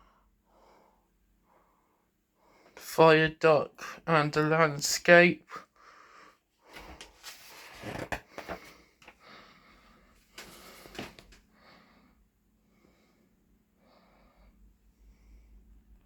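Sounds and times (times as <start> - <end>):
person breathing close: 5.5 - 15.7
rustling and handling noise: 6.6 - 9.4, 10.0 - 11.5.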